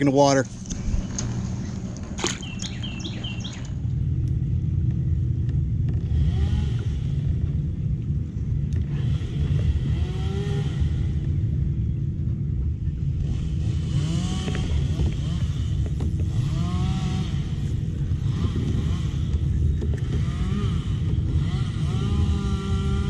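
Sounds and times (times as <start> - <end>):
steady low rumble: 0.0 - 23.0
high bird chirps: 2.3 - 3.8.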